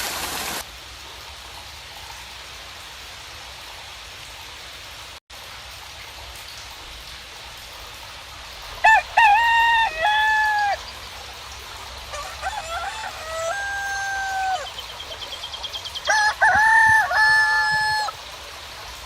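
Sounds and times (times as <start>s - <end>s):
hiss of falling rain: 0.0s - 19.0s
rooster crowing: 8.8s - 10.8s, 12.1s - 14.8s, 16.0s - 18.2s.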